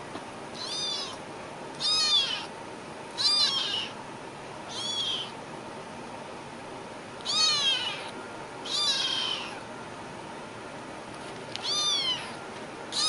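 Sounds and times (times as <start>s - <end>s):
cat meowing: 0.6s - 1.2s, 1.8s - 2.5s, 3.2s - 4.0s, 4.7s - 5.4s, 7.2s - 9.6s, 11.6s - 13.0s.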